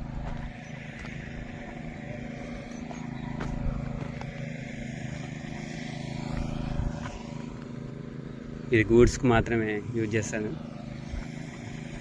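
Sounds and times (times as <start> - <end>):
engine running with low hum: 0.0 - 12.0.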